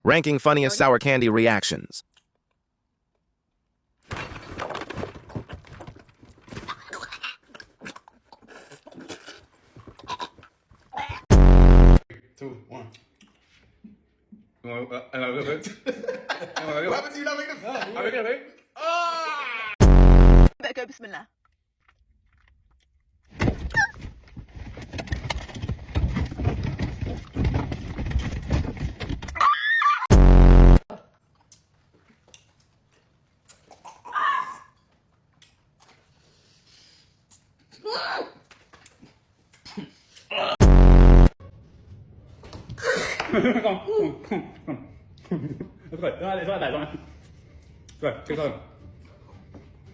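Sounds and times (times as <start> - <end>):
crunching and chewing: 6.7 - 10.9
loud distorted buzzing blast: 11.3 - 12.0, 19.8 - 20.6, 30.1 - 30.8, 40.6 - 41.4
knocking and rustling: 23.3 - 29.4.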